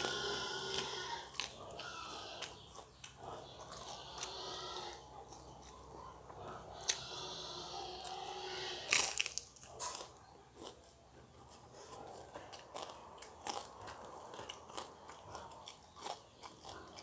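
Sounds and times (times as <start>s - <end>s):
crunchy chewing of flatbread: 0.0s - 17.0s.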